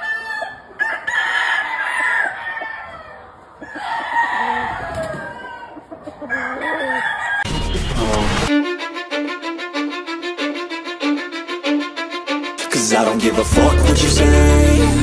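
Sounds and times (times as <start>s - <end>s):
roosters crowing: 0.0s - 7.5s.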